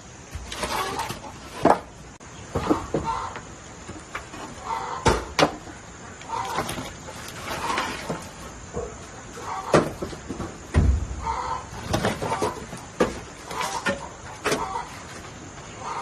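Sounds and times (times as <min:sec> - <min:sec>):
chickens clucking: 0:00.5 - 0:16.0
sharp knocks: 0:10.7 - 0:11.4.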